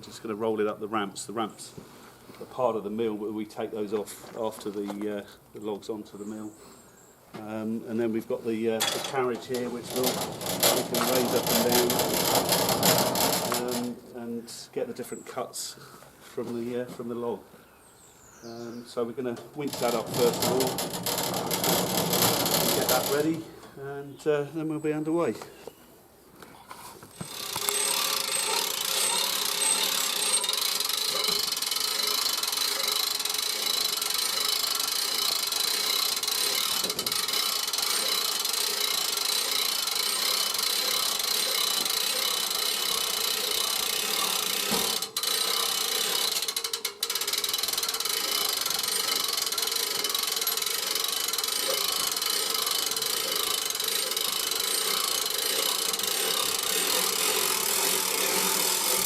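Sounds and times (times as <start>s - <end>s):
winch ratcheting and grinding: 8.6s - 14.0s, 19.4s - 23.7s, 27.1s - 59.0s.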